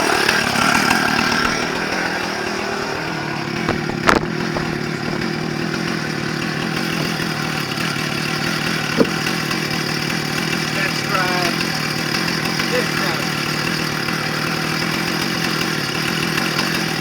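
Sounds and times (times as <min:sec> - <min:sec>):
chainsaw engine running: 0:00.0 - 0:17.0.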